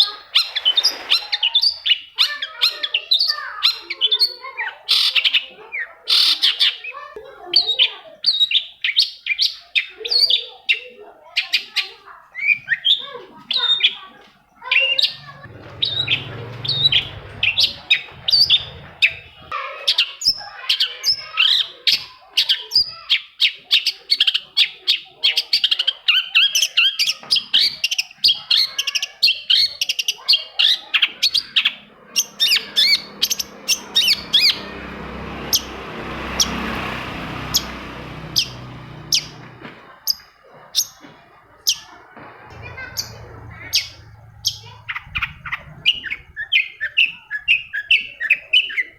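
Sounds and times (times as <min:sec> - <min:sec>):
bird chirping and trilling: 0:07.6 - 0:20.4, 0:26.1 - 0:39.5, 0:42.5 - 0:48.9.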